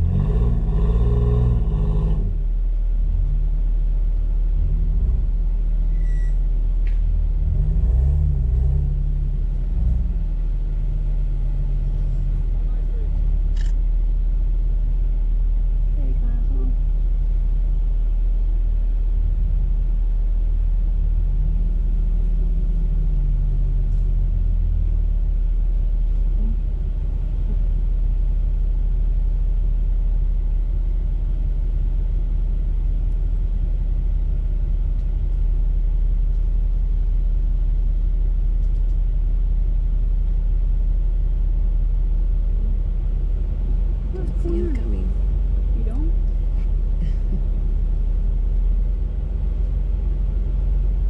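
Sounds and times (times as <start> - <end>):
car engine rumbling and revving: 0.0 - 51.0.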